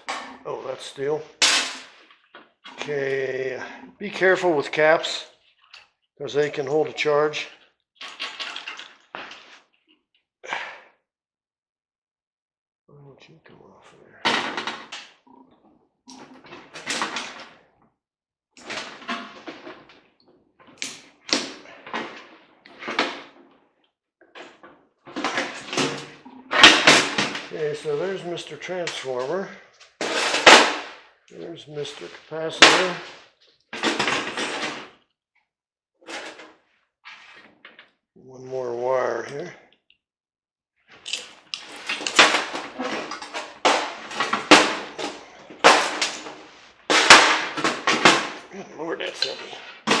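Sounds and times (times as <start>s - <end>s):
metal parts knocking and clanking: 41.1s - 48.4s.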